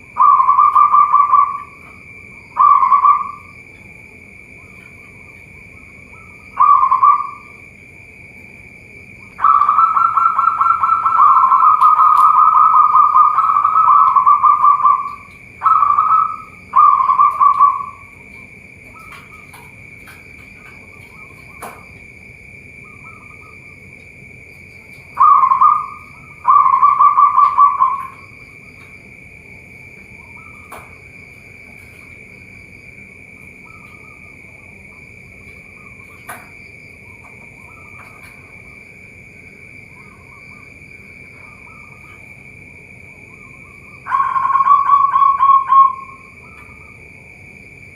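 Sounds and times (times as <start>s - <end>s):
dove cooing: 0.0s - 3.6s, 4.6s - 7.6s, 9.2s - 21.9s, 24.7s - 28.9s, 43.3s - 47.0s
high-pitched ringing: 0.0s - 7.9s, 8.7s - 47.9s.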